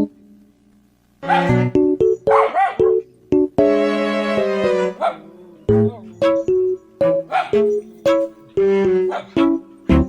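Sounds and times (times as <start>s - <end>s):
small dog barking: 1.2s - 1.6s, 2.3s - 3.0s, 5.0s - 5.3s, 7.3s - 7.7s, 9.1s - 9.4s
piano music: 1.2s - 10.0s.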